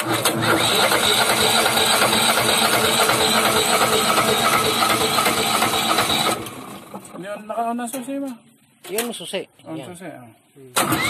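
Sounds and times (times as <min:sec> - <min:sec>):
starter motor cranking engine: 0:00.0 - 0:07.0, 0:10.8 - 0:11.0.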